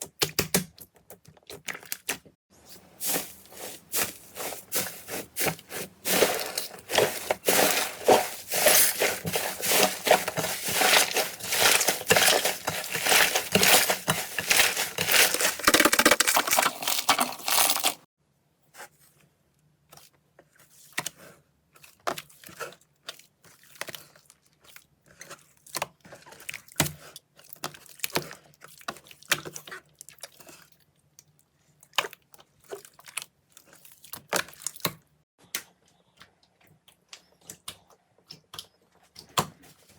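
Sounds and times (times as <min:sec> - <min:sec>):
slime crackling and popping: 0:06.1 - 0:18.0.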